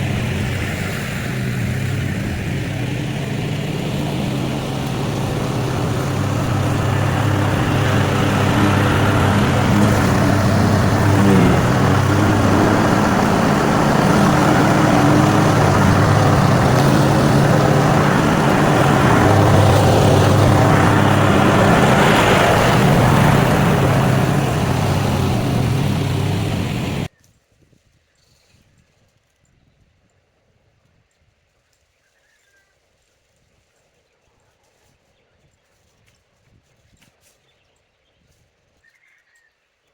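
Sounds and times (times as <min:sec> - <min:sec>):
small petrol engine running: 0:00.0 - 0:27.1.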